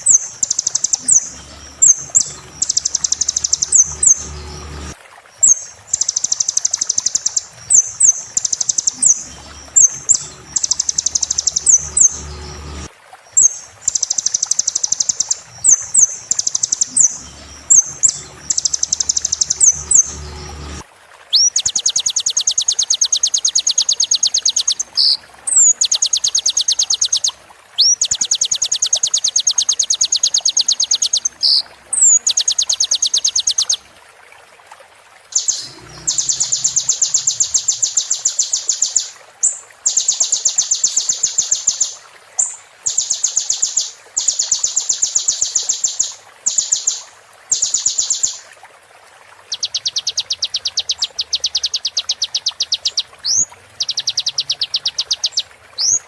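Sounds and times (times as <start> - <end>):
high buzzing bird trill: 0.0 - 20.8, 35.4 - 39.0.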